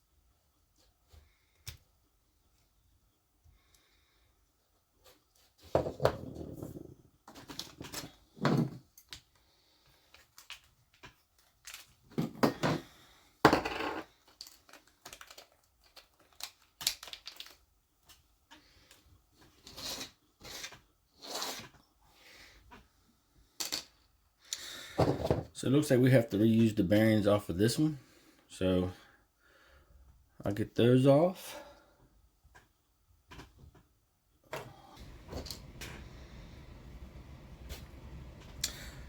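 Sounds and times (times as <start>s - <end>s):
small parts clicking and clinking: 8.9s - 12.1s, 13.9s - 19.0s, 23.6s - 24.6s.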